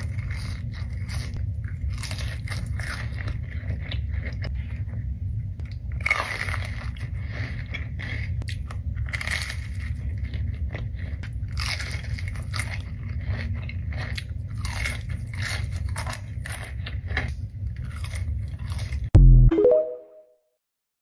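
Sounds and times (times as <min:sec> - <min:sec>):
crunchy biting and chewing: 0:00.0 - 0:19.1
loud low burst: 0:19.2 - 0:20.2
short rising tone: 0:19.2 - 0:20.3.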